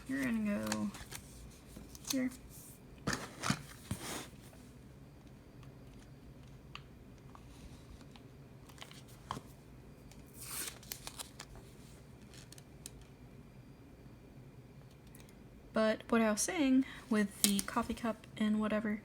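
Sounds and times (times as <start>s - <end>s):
paper rustling: 0.0s - 2.4s, 10.4s - 12.6s.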